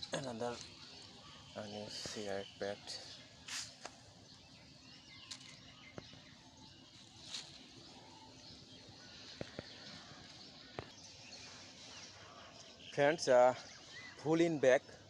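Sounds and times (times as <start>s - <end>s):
outdoor hiss: 0.0s - 5.9s
faint rustles: 3.0s - 4.0s, 6.8s - 8.4s.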